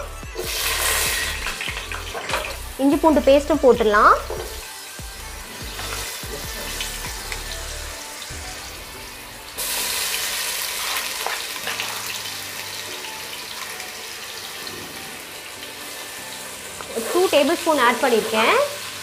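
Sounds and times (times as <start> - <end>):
faint background music: 0.0 - 19.0
spices sizzling in hot oil: 0.0 - 19.0.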